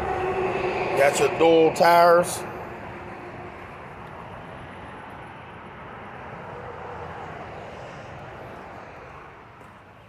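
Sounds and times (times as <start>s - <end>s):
vehicle passing by: 0.0s - 5.0s.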